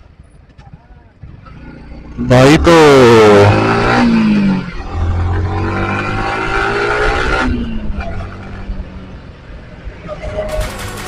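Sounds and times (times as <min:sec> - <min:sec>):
motorcycle engine while riding: 0:01.2 - 0:09.4.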